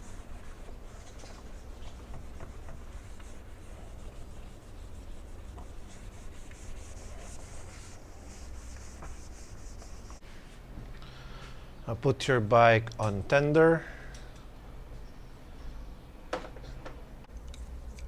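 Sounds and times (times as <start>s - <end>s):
cloth swishing on paintwork: 0.0s - 10.7s.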